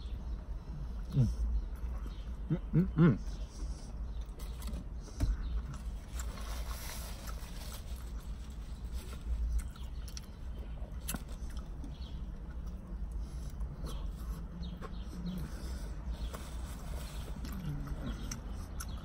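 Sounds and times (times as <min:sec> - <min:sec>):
man chewing with mouth clicks: 0:09.5 - 0:16.2, 0:17.3 - 0:19.0.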